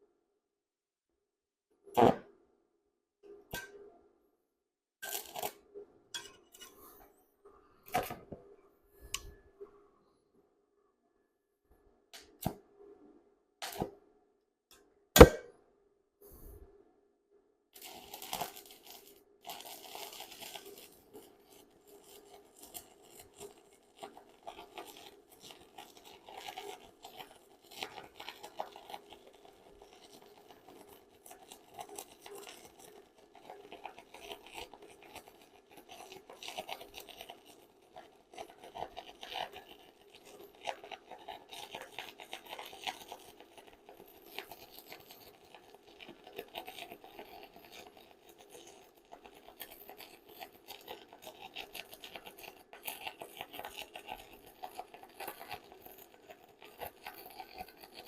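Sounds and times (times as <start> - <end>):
stick welding arc crackling: 5.0 - 5.6, 17.8 - 52.2.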